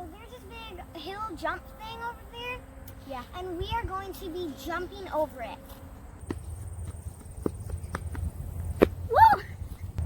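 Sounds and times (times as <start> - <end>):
steady low rumble: 0.0 - 10.0
sharp uneven footsteps: 5.6 - 10.0.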